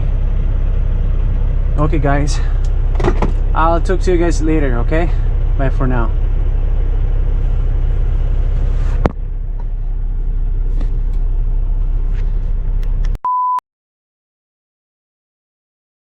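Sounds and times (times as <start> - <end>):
truck engine idling: 0.0 - 13.2
short high beep: 13.2 - 13.6.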